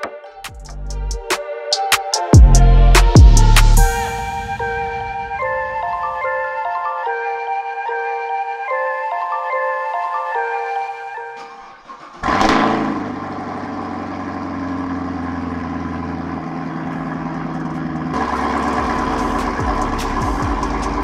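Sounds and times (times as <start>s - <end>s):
car engine starting and idling: 2.4s - 6.4s, 11.2s - 21.0s.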